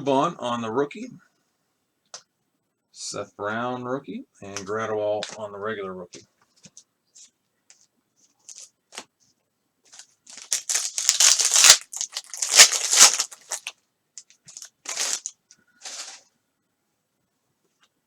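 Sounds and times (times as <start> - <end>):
plastic wrapper crinkling and tearing: 8.5 - 8.7, 9.9 - 16.2.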